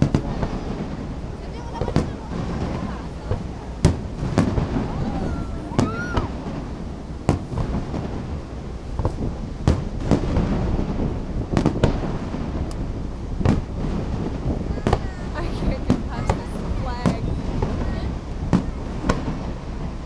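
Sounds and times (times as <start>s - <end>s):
fireworks booming: 0.0s - 20.0s
low rumble: 0.0s - 20.0s.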